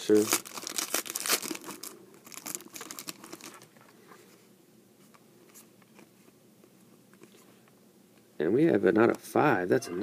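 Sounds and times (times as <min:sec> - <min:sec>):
cards rustling: 0:00.0 - 0:03.7
wrapper crinkling: 0:00.0 - 0:03.7.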